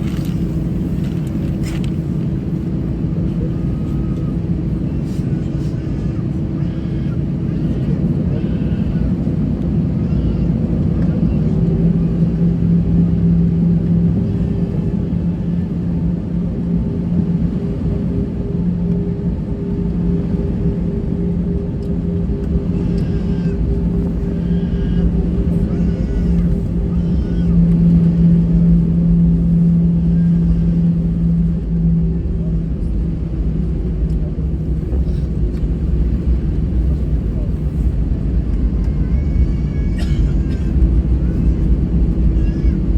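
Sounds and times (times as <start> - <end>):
aircraft cabin engine rumble: 0.0 - 42.9
steady hum: 11.6 - 42.9.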